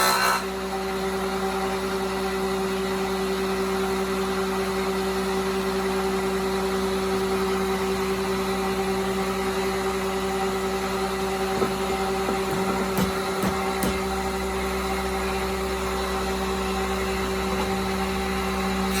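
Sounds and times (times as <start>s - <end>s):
engine humming: 11.3s - 19.0s.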